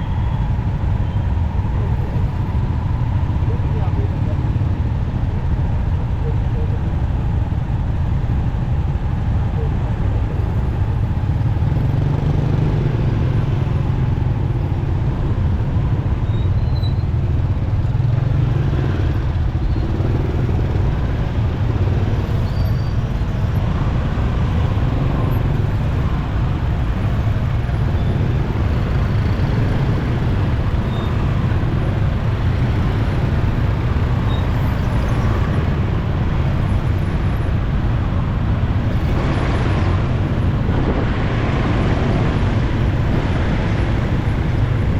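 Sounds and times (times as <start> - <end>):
surrounding traffic: 0.0 - 44.9
wind noise on microphone: 23.0 - 44.9.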